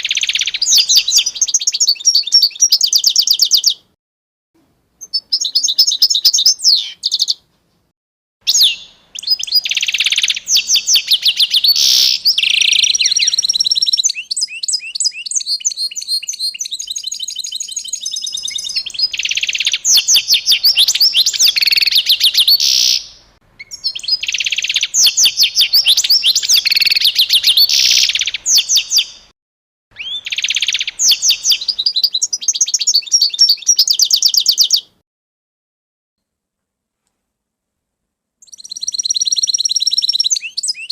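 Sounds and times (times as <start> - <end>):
songbird trilling and chirping: 0.0 - 3.9, 5.0 - 7.4, 8.5 - 29.3, 30.0 - 35.0, 38.4 - 40.9.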